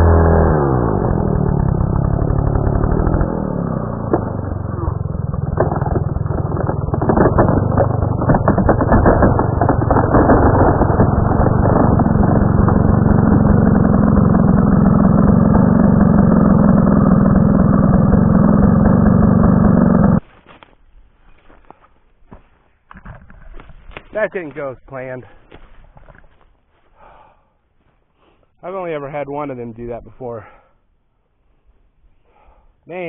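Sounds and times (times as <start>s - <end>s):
chainsaw running at high revs: 0.0s - 20.2s.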